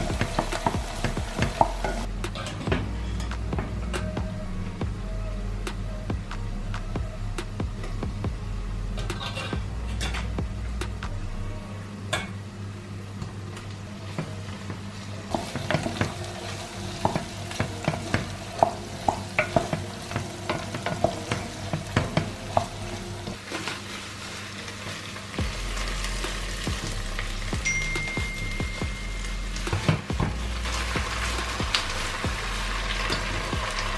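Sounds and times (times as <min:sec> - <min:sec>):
food sizzling in a frying pan: 0:00.0 - 0:02.1, 0:14.0 - 0:33.9.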